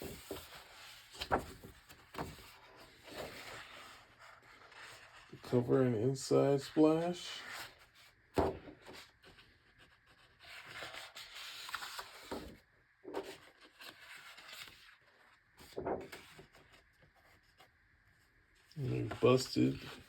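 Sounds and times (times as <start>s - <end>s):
book pages turning: 0.0s - 5.6s, 8.8s - 17.7s.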